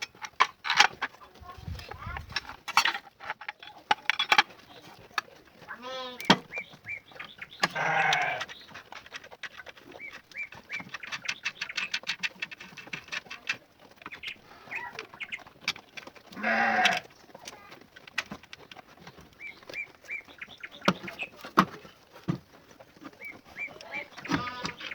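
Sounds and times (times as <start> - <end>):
small birds chirping: 3.5 - 24.9
farm animal bleating: 5.6 - 6.7, 7.5 - 8.7, 16.3 - 17.7, 23.6 - 24.9.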